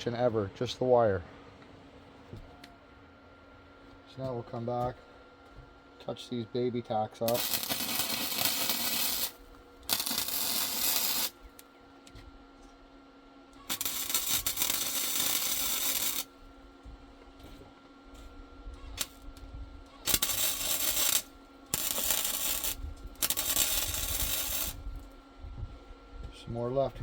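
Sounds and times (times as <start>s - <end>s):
welder steady hum: 0.0s - 27.0s
welding arc crackling: 7.2s - 11.6s, 13.6s - 16.4s, 18.9s - 19.4s, 20.0s - 25.2s.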